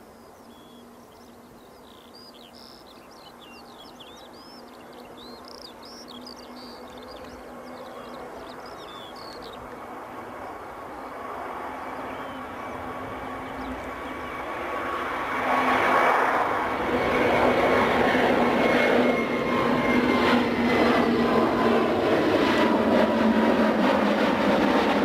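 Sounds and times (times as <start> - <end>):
jet engine whine: 0.0 - 25.0
jet engines roaring: 6.6 - 25.0.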